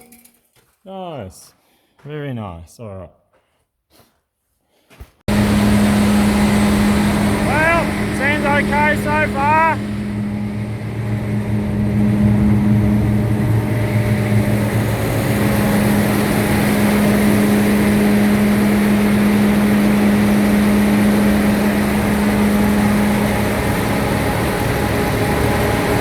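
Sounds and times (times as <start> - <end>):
combine harvester droning: 5.3 - 26.0.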